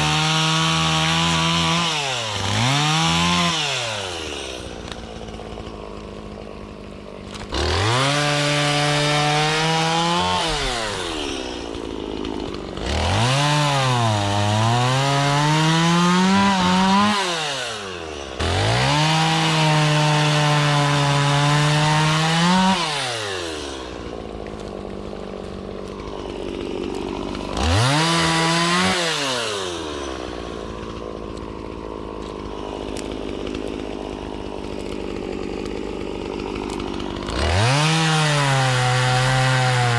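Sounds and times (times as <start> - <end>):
chainsaw bogging cutting wood: 0.0 - 39.9
chainsaw revving and idling: 0.0 - 39.9.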